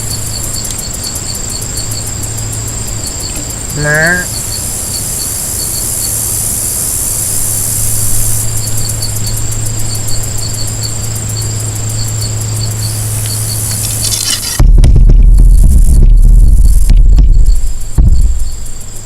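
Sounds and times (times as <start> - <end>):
insect chirps: 0.0 - 19.0
insect pulsing trill: 0.0 - 19.0
insects droning: 0.0 - 19.0
low steady hum: 0.0 - 19.0
loud low rumble: 12.8 - 19.0.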